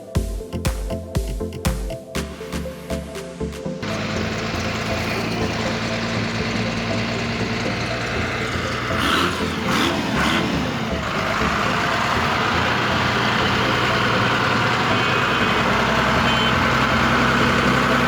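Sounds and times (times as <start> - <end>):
toy tractor mechanical drone: 3.8 - 18.0.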